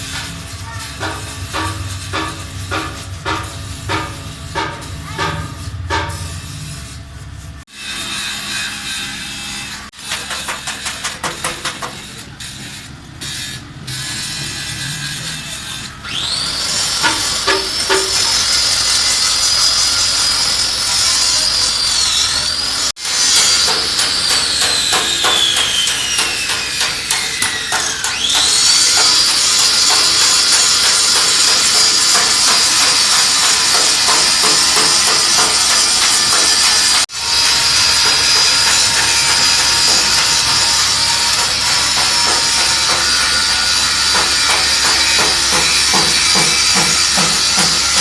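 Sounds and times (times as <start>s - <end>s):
choppy scraping strokes: 0.0s - 16.0s
high-speed power tool whine: 14.3s - 48.0s.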